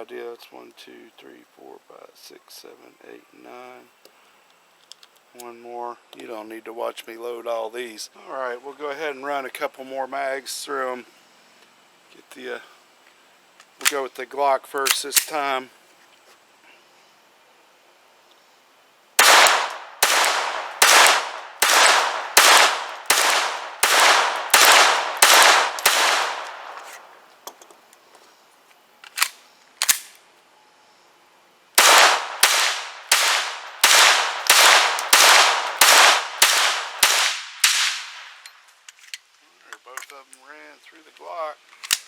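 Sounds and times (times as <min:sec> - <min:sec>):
pistol shots: 0:19.2 - 0:27.1, 0:31.8 - 0:38.4.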